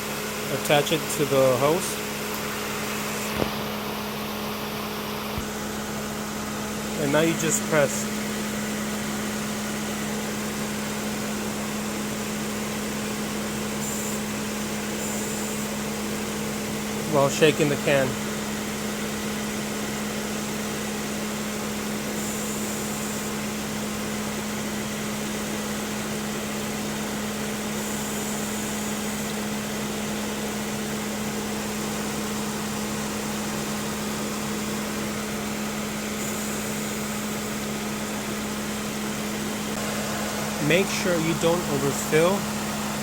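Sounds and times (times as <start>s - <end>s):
car engine idling: 15.8s - 22.2s, 23.5s - 43.0s.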